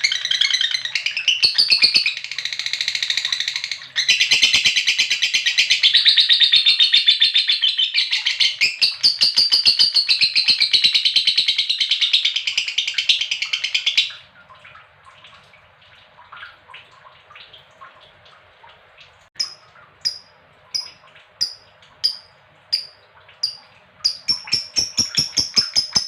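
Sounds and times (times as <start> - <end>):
lovebird chattering trill: 19.4 - 26.0
sharp high bird calls: 19.4 - 26.0
soft bird twittering: 19.4 - 26.0.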